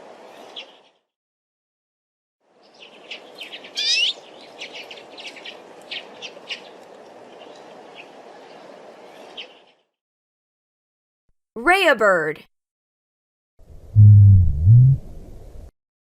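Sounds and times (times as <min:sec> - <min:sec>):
songbird chirping: 0:02.6 - 0:09.9.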